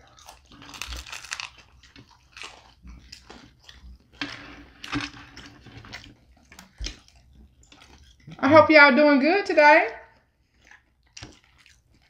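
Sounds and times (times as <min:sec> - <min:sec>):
people chewing and biting pizza: 0:00.0 - 0:08.6, 0:10.0 - 0:12.0.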